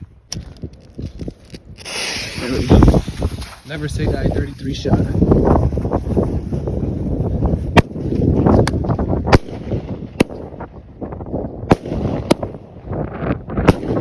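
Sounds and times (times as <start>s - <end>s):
firework sharp bangs: 7.7s - 10.7s, 11.7s - 14.0s.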